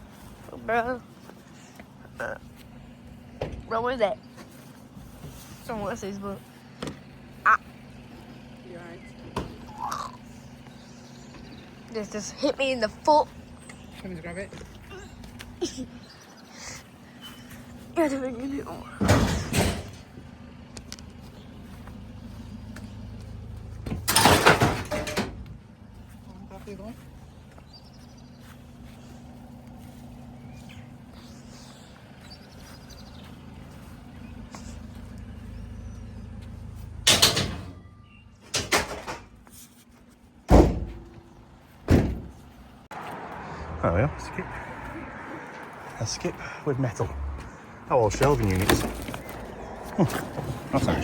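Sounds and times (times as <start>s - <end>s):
vehicle engine idling: 0.0s - 51.0s
vehicle doors slamming: 19.0s - 20.1s, 23.8s - 25.5s, 36.9s - 39.4s, 40.5s - 42.5s, 48.1s - 51.0s.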